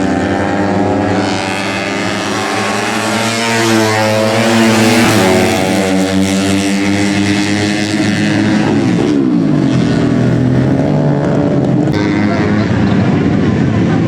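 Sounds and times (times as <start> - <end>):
race motorcycles at high revs: 0.0 - 14.0.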